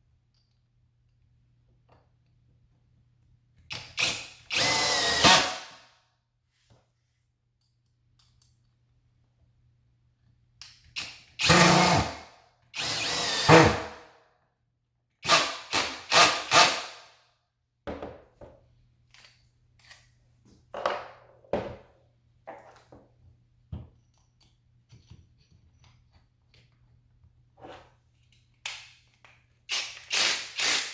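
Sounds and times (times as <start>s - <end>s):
cordless drill whirring: 4.0s - 5.7s, 11.4s - 12.2s, 12.8s - 14.0s, 15.2s - 17.0s, 29.7s - 30.9s
tool handling clicks and knocks: 22.5s - 27.0s.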